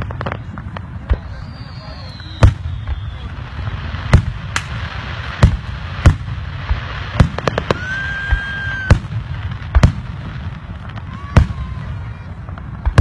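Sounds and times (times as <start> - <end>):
firework high whistle: 0.0 - 5.6, 7.2 - 9.2, 10.9 - 12.4
fireworks bangs: 0.0 - 13.0.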